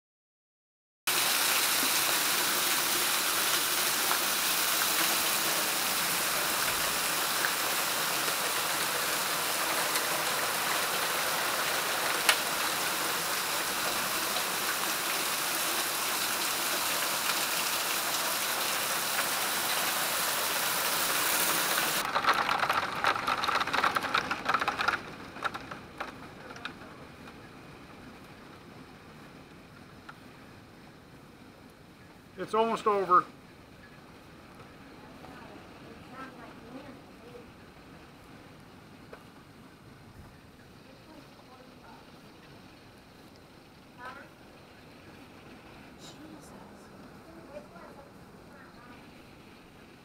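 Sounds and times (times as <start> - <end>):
hail striking hard surfaces: 1.1 - 27.5.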